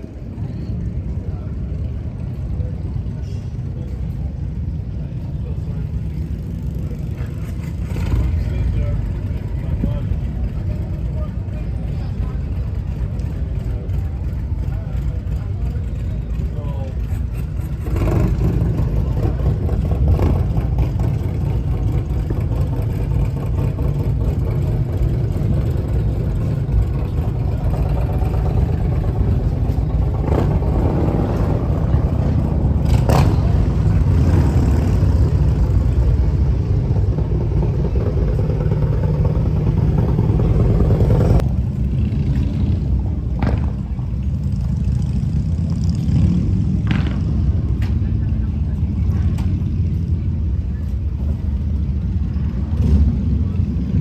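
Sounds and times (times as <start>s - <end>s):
motorcycle engine running: 0.0s - 54.0s
road noise: 0.0s - 54.0s.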